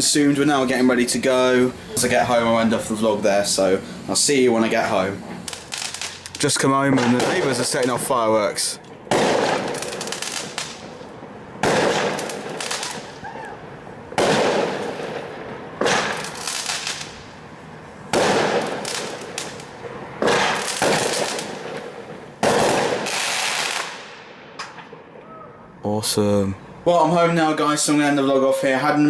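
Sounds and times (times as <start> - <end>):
fireworks exploding: 0.0 - 25.3.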